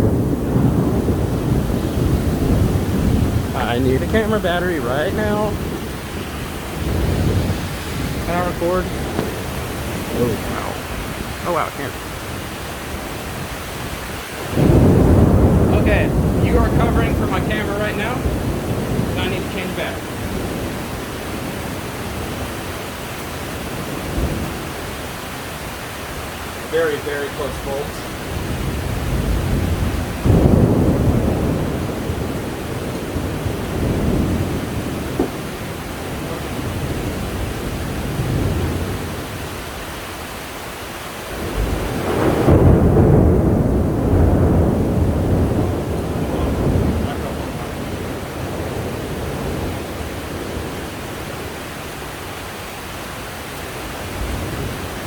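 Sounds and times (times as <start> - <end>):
heavy rain pouring: 0.0 - 55.0
thunder rumbling: 0.0 - 55.0
low bump: 6.8 - 11.5.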